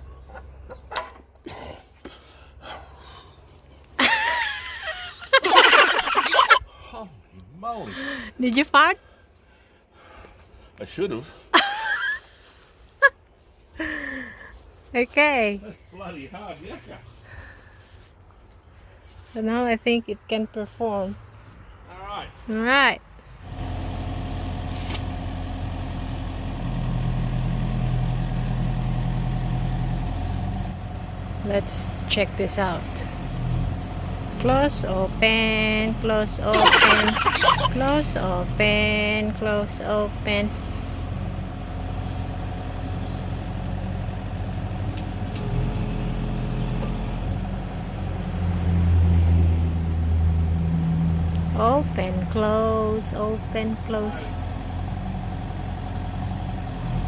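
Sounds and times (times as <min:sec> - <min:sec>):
excavator diesel engine running: 0:02.1 - 0:06.6, 0:23.4 - 0:57.0.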